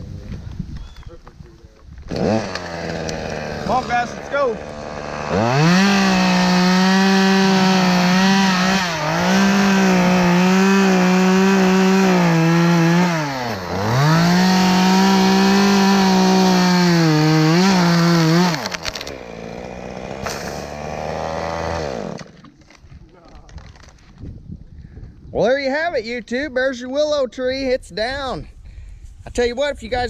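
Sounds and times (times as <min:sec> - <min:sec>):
chainsaw cutting wood: 0:02.0 - 0:22.9.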